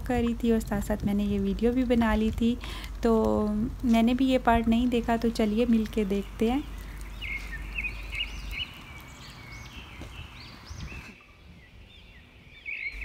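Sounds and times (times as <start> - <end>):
low rumble: 0.0 - 9.6
birds chirping: 3.9 - 13.0.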